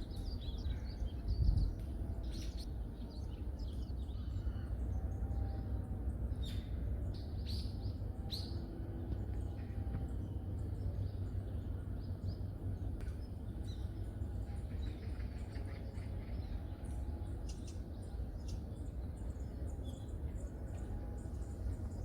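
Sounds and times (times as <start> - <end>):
small birds chirping: 0.0 - 5.2
steady low rumble: 0.0 - 22.0.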